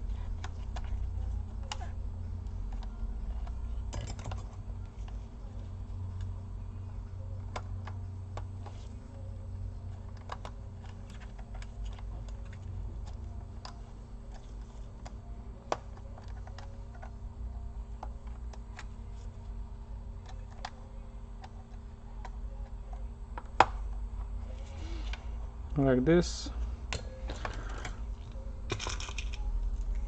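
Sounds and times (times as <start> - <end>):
low steady hum: 0.0 - 30.0
laptop parts clicking and tapping: 0.1 - 6.3, 9.8 - 17.2, 20.2 - 23.9, 26.9 - 30.0.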